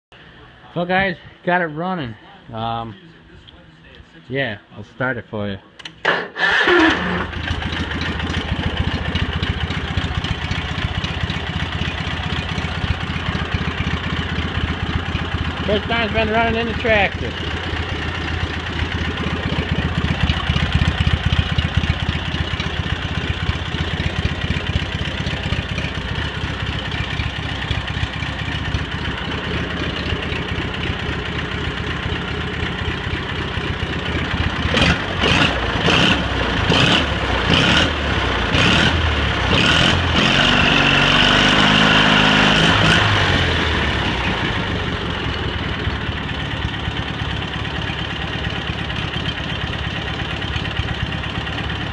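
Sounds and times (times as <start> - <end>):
tractor engine idling: 4.8 - 51.9
engine revving: 6.2 - 9.8, 34.4 - 45.3.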